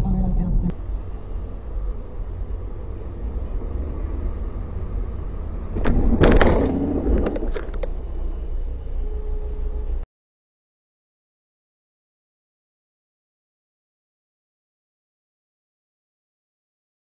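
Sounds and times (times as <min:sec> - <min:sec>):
car road and engine rumble: 0:00.0 - 0:10.0
loud impact with rattling: 0:05.8 - 0:07.5.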